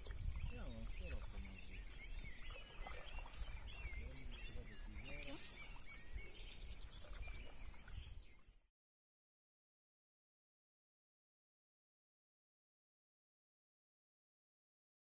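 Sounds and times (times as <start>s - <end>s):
wind rumble on microphone: 0.0s - 8.4s
birds chirping: 0.0s - 8.6s.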